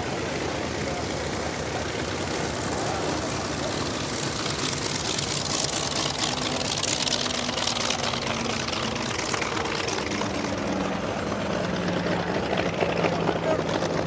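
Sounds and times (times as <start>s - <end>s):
propeller aircraft engine droning: 0.0s - 14.0s.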